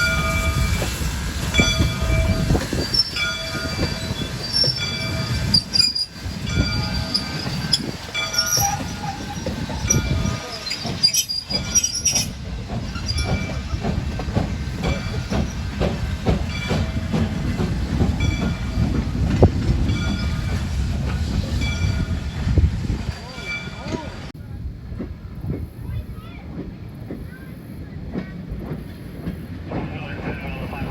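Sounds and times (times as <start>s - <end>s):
train cars rumbling: 0.0s - 30.9s
wheels clacking over rail joints: 0.0s - 30.9s
wheel squeal: 1.6s - 13.9s.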